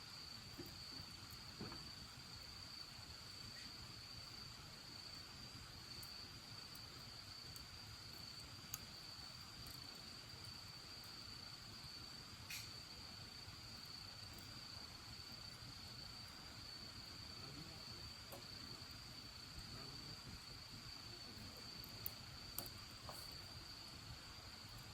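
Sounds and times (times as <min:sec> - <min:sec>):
wood fire popping and crackling: 0:00.4 - 0:24.9.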